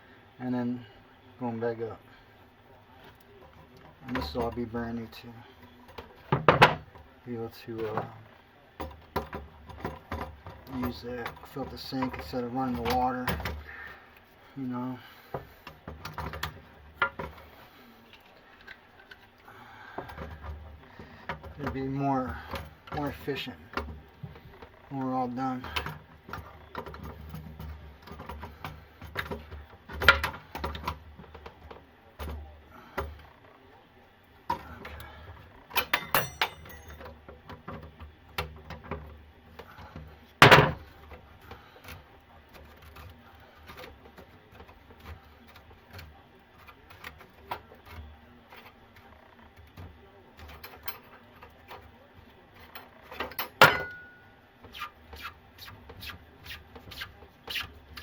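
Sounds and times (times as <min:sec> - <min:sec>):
clinks of hand tools and pipes: 0:08.8 - 0:13.7, 0:19.9 - 0:32.4, 0:34.5 - 0:39.1, 0:49.8 - 0:51.9, 0:52.5 - 0:54.4.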